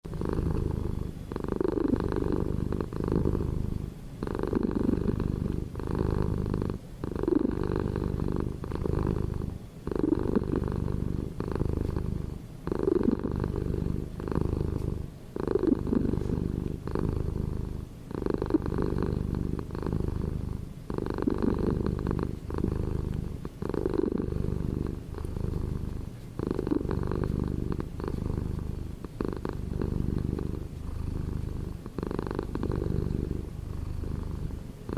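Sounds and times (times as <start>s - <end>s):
cat purring: 0.0s - 34.9s.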